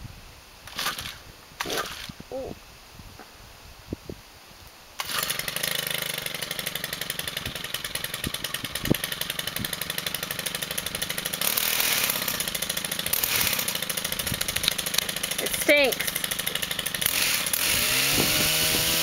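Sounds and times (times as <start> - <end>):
two-stroke engine idling: 5.0 - 19.0.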